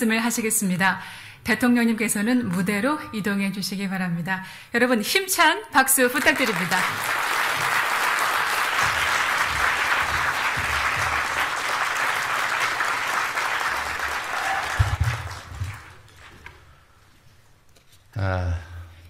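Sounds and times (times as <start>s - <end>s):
audience applauding: 6.2s - 16.6s.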